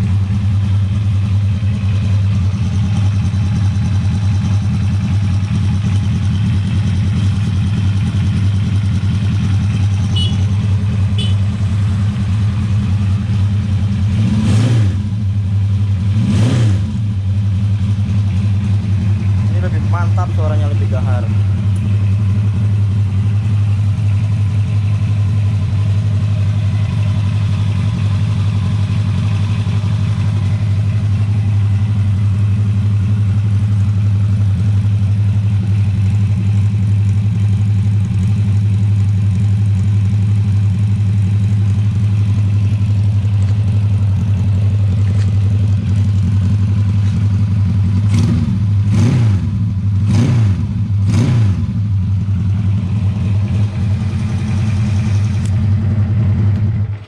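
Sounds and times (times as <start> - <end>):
motorcycle engine idling: 0.0 - 14.4, 15.0 - 16.2, 16.9 - 57.0
motorcycle throttle revs: 10.1 - 10.5, 11.2 - 11.5, 14.0 - 15.2, 16.0 - 17.1, 47.8 - 51.9.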